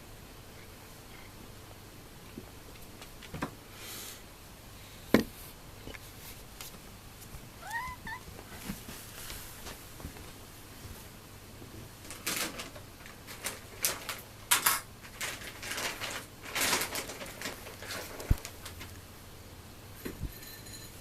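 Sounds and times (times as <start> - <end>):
cat meowing: 7.6 - 8.3.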